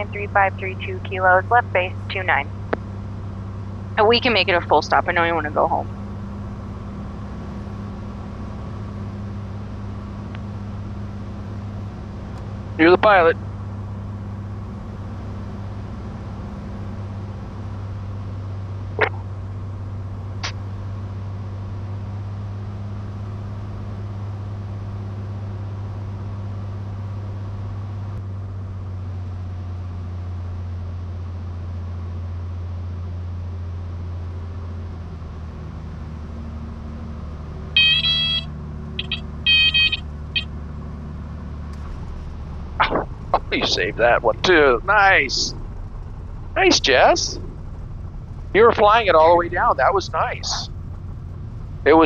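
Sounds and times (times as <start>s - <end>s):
airplane engine droning: 0.0s - 52.0s
high-pitched warning horn: 37.8s - 40.5s.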